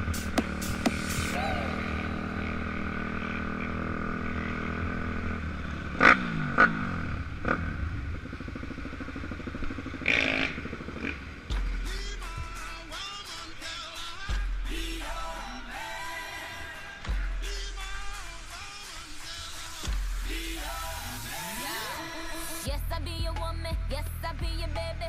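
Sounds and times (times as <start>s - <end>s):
pit bike engine running: 0.0s - 13.2s.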